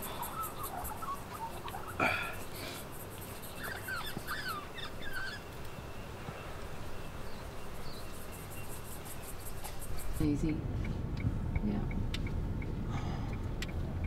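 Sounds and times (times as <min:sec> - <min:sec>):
bird chirping: 0:00.0 - 0:10.6
fine regular ticking: 0:07.4 - 0:14.0.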